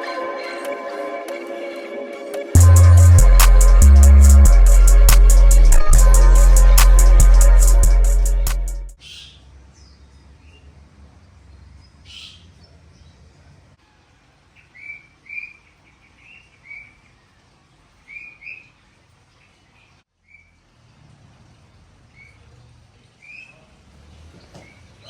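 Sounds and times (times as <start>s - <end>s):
low background rumble: 2.6s - 9.0s.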